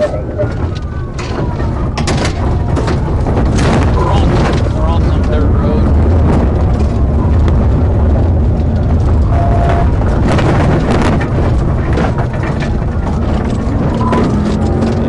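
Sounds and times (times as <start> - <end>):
car engine and road rumble: 0.0 - 15.0
knocks and rattles: 0.0 - 15.0.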